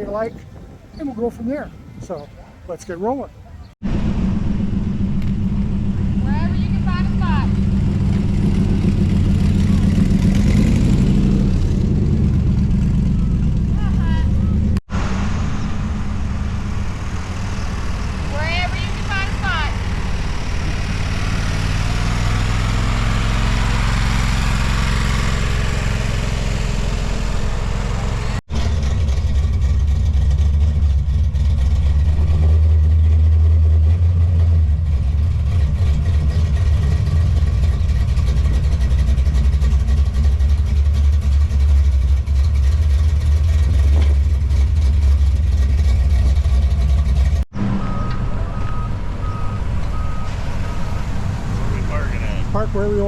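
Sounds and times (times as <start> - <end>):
vehicle engine rumbling: 0.0 - 53.0
reversing beeper: 47.6 - 52.8.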